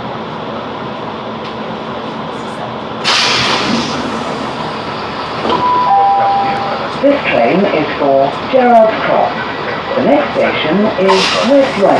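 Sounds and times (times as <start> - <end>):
diesel train interior rumble: 0.0 - 11.9
two-note announcement chime: 5.5 - 6.8.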